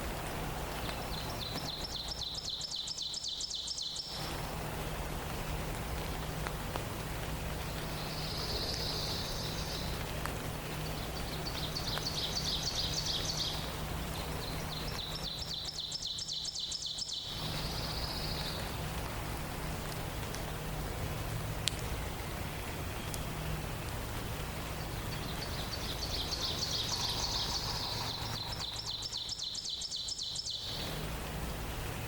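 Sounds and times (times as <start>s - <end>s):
steady background hiss: 0.0s - 32.0s
songbirds singing: 0.6s - 32.0s
low hum: 17.3s - 29.6s.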